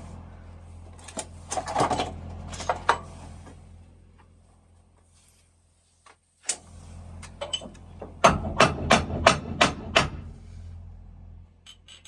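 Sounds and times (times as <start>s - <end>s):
hammer striking metal: 8.2s - 10.3s.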